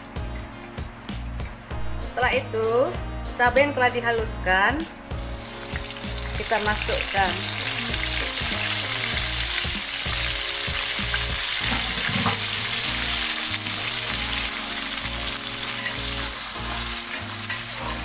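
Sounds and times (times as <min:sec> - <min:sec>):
chili paste sizzling in oil: 0:05.1 - 0:18.0.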